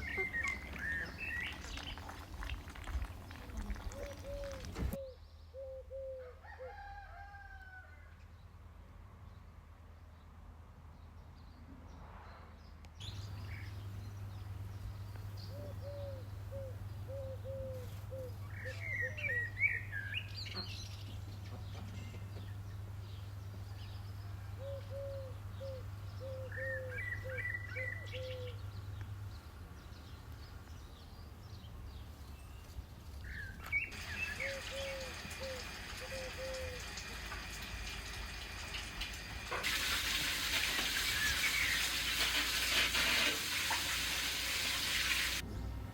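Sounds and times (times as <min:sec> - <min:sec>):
hens clucking: 0:00.0 - 0:05.0
small birds chirping: 0:00.0 - 0:05.9.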